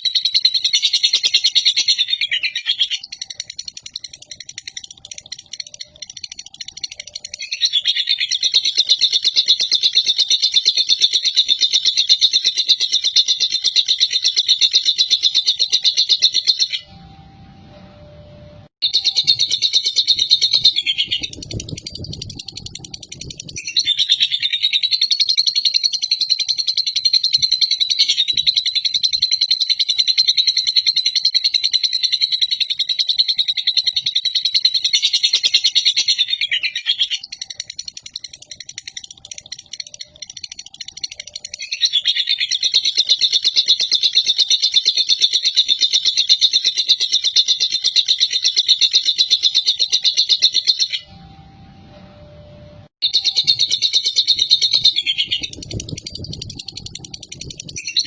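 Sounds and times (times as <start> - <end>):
lovebird chattering trill: 0.0 - 16.9, 18.8 - 51.1, 53.0 - 58.0.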